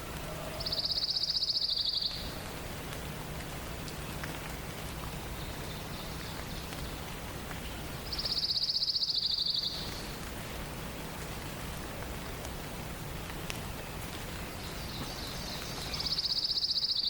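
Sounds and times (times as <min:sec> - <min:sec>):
forest ambience hiss: 0:00.0 - 0:17.0
songbird trilling: 0:00.6 - 0:02.3, 0:08.0 - 0:10.1, 0:14.6 - 0:17.0.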